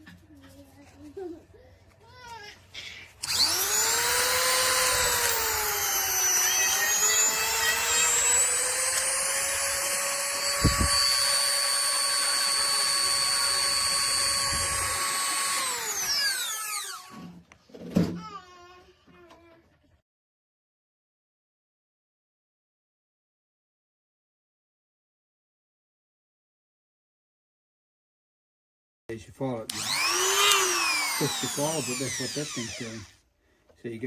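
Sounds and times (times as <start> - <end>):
chainsaw sharpener motor whining: 3.2 - 17.2, 29.7 - 33.2.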